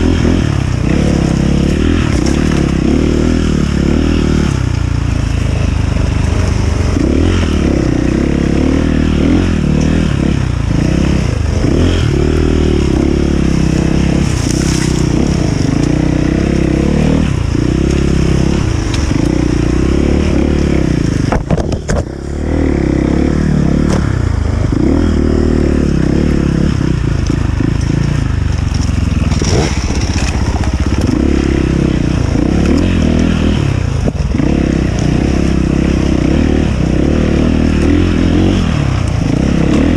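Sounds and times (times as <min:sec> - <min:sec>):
dirt bike engine revving: 0:00.0 - 0:39.9
rattling and scraping: 0:13.5 - 0:22.3, 0:27.1 - 0:33.3.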